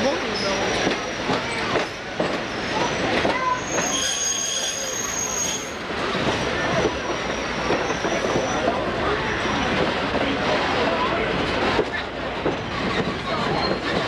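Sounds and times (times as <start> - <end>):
train wheels clattering on rails: 0.0 - 14.0
high wheel squeal: 0.2 - 9.7.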